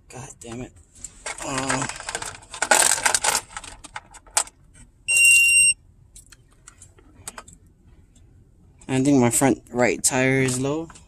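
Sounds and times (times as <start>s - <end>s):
rattling and rustling: 1.0s - 4.6s
high-pitched alarm beep: 5.1s - 5.8s.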